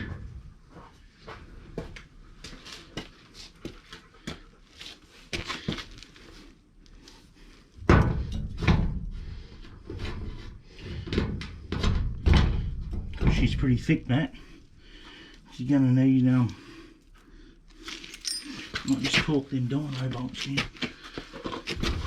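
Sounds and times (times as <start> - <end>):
thumping and rattling on sheet metal: 7.8 - 9.2, 10.0 - 13.6, 21.7 - 22.0.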